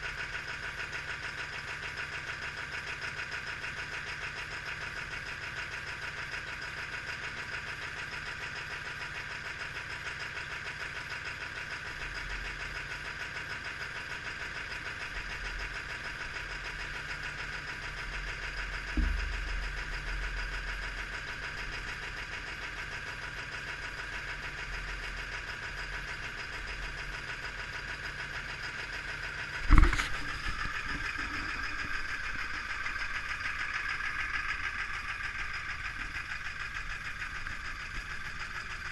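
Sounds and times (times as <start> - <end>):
diesel engine idling with clatter: 0.0 - 38.9
sharp thumps: 29.6 - 32.5.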